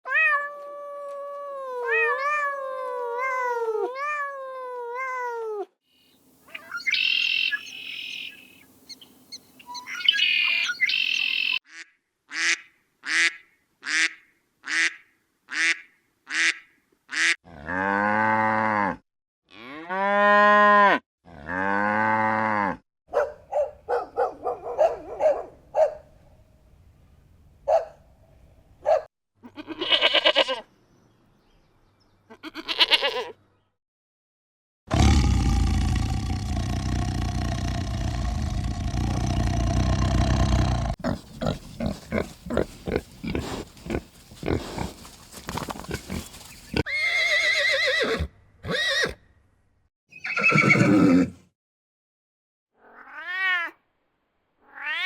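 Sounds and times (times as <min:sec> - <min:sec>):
rasping high calls: 0:06.5 - 0:11.6
sliding pitched animal calls: 0:39.8 - 0:48.2.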